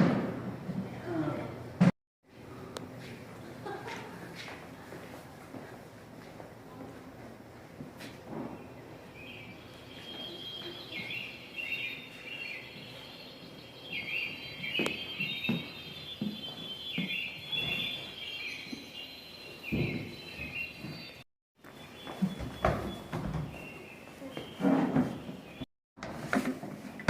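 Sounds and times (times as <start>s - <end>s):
bird chirping: 8.6s - 25.7s.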